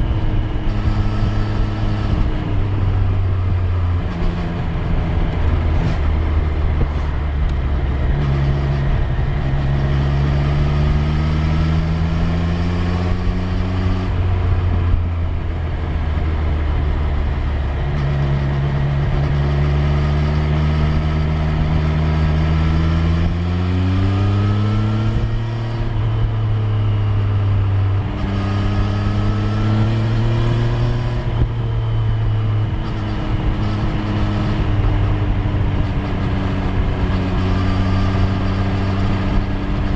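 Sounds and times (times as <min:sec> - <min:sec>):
road noise rushing: 0:00.0 - 0:13.2
motorcycle engine revving: 0:00.0 - 0:39.9.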